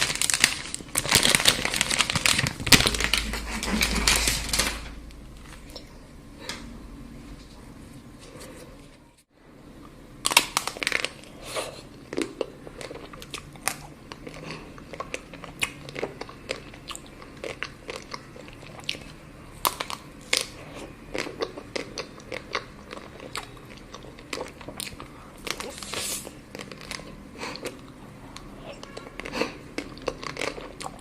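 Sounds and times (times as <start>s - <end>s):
chocolate being bitten and chewed: 10.2s - 31.0s.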